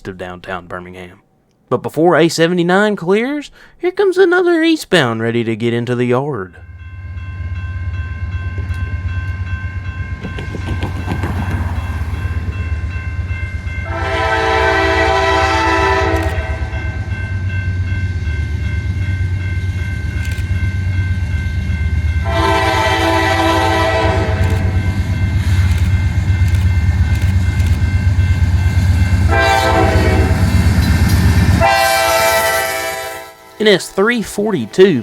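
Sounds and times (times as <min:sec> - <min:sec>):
diesel locomotive engine drone: 0:06.6 - 0:35.0
locomotive horn blasts: 0:13.8 - 0:17.1, 0:22.2 - 0:25.0, 0:29.3 - 0:30.5, 0:31.6 - 0:33.6.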